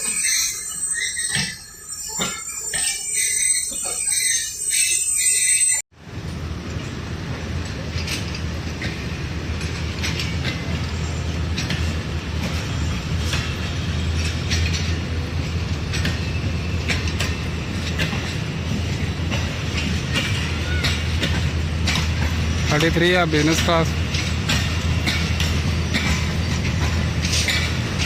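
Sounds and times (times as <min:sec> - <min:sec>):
locomotive engine drone: 0:00.0 - 0:28.0
wheels clicking over rail joints: 0:06.2 - 0:28.0.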